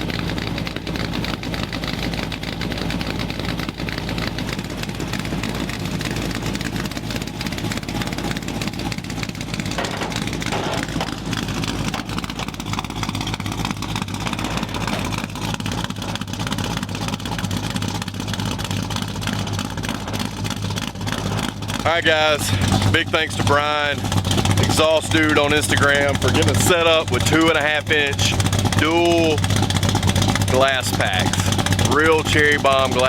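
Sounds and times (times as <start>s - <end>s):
rowdy car exhaust note: 0.0s - 33.0s.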